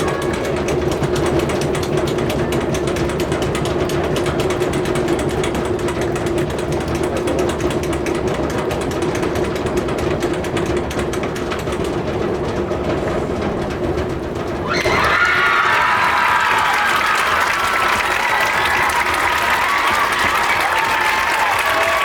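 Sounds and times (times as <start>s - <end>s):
snare drum roll: 12.0s - 22.0s.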